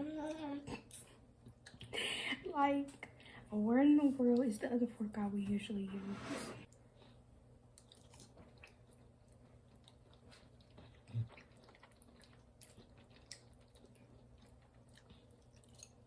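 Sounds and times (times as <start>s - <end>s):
chewing food: 6.9s - 16.0s.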